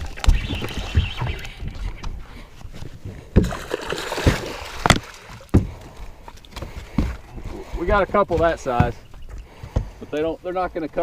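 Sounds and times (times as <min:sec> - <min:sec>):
water splashing: 0:00.0 - 0:07.0
knocks and thumps on boat: 0:04.2 - 0:10.8.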